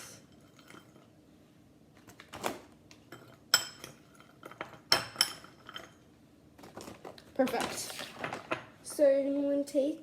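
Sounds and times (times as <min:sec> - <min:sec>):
bowl and utensil clinking: 0:00.0 - 0:01.1, 0:03.0 - 0:06.1.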